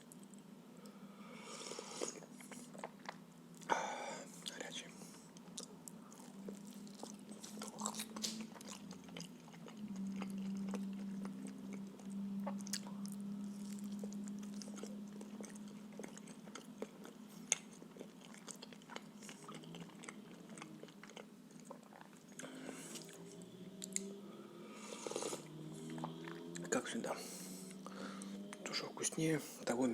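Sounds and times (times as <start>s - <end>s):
close chewing and mouth sounds: 0.0s - 1.0s, 1.7s - 3.7s, 4.3s - 24.2s, 24.8s - 28.9s
low hum: 2.2s - 29.9s.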